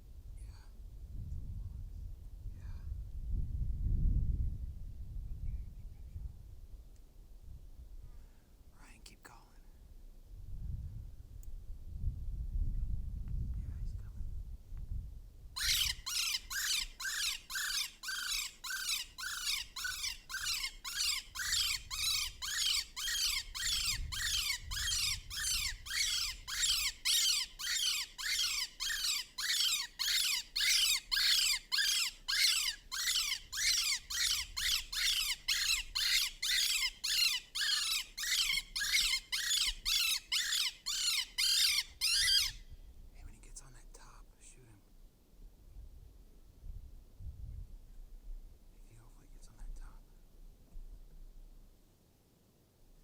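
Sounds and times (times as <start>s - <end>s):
electronic predator call squealing: 15.6s - 42.6s.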